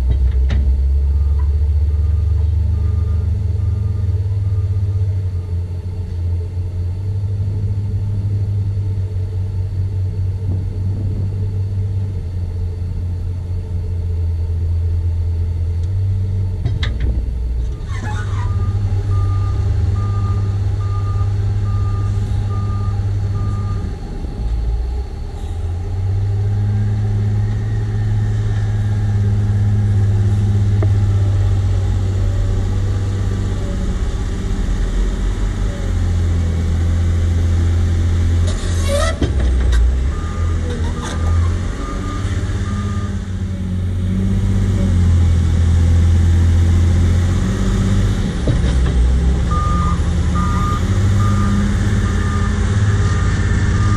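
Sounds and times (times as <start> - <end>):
wheel loader diesel engine working: 0.0 - 53.9
reversing alarm beeping: 1.0 - 5.5, 18.2 - 23.9, 40.0 - 43.2, 49.5 - 53.9.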